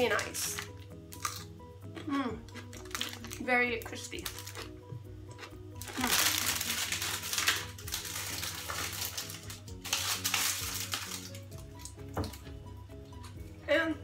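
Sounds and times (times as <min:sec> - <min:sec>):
background music: 0:00.0 - 0:14.0
plastic packaging crinkling: 0:02.6 - 0:04.7, 0:05.4 - 0:12.4.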